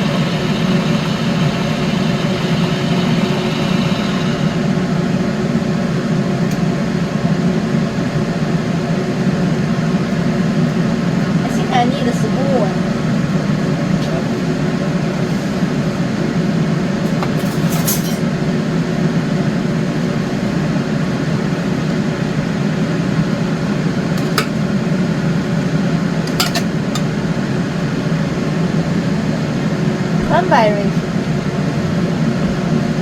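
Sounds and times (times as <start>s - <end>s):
mechanical fan hum: 0.0s - 33.0s
spoon clinking against dishes: 24.2s - 24.6s, 26.3s - 27.1s.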